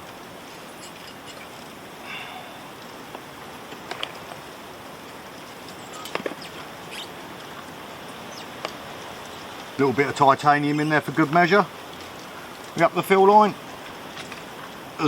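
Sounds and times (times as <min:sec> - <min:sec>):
steady background hiss: 0:00.0 - 0:15.0
camp gear rustling and clinking: 0:00.4 - 0:01.7, 0:05.1 - 0:07.6.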